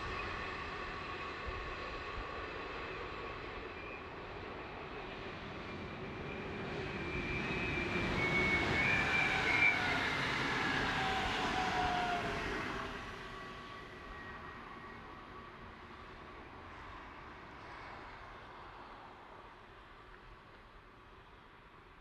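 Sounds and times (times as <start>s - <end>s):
freight train rolling on rails: 0.0s - 17.2s.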